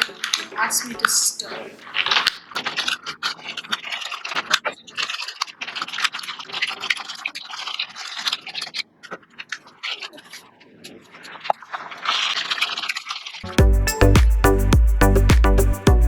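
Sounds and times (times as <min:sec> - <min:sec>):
straw scraping in a cup: 0:01.4 - 0:13.4.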